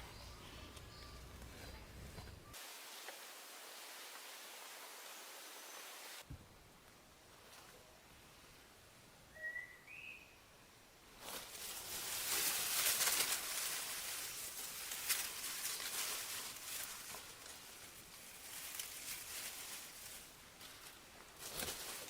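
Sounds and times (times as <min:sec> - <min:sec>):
bird chirping: 0:00.0 - 0:02.6, 0:09.3 - 0:10.5
rustling and crackling: 0:11.2 - 0:22.0.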